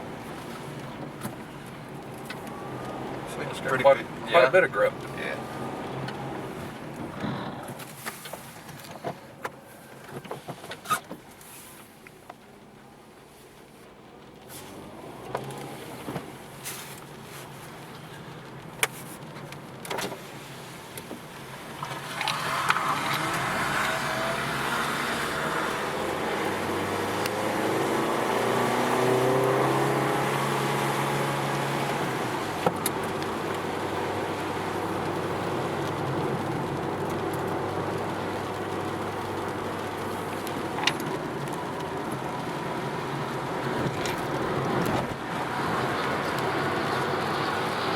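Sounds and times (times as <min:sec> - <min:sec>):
tyre and road noise: 0:00.0 - 0:47.9
car engine revving: 0:02.0 - 0:07.8, 0:21.8 - 0:47.9.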